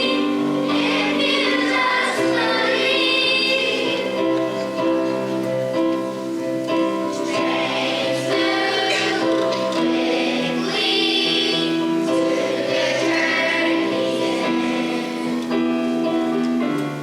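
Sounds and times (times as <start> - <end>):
choir singing sustained notes: 0.0 - 4.8, 7.1 - 15.7.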